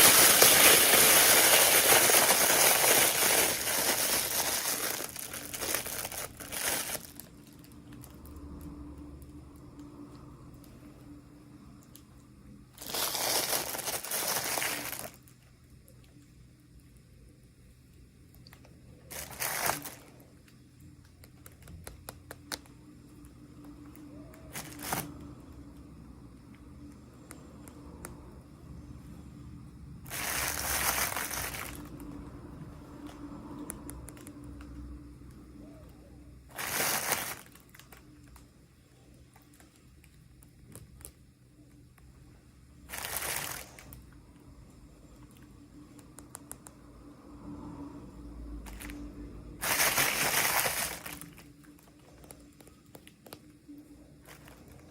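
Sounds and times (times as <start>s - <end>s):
plastic packaging crinkling: 0.0s - 8.2s, 12.8s - 15.4s, 18.4s - 20.3s, 24.4s - 25.2s, 30.1s - 32.2s, 36.5s - 38.4s, 42.9s - 44.0s, 48.6s - 49.0s, 49.6s - 53.5s, 54.2s - 54.9s
small clicks and taps: 20.8s - 22.9s.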